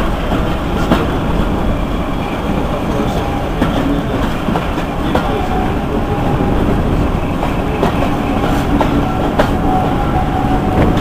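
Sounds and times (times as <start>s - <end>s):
locomotive engine running: 0.0s - 11.0s
train coaches rumbling on track: 0.0s - 11.0s.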